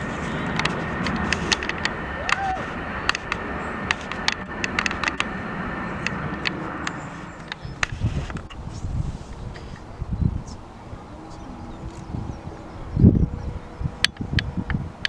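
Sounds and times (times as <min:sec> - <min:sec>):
jet engine rushing with whine: 0:00.0 - 0:15.0
low rumbling: 0:00.0 - 0:15.0
sharp clicks: 0:03.0 - 0:05.3.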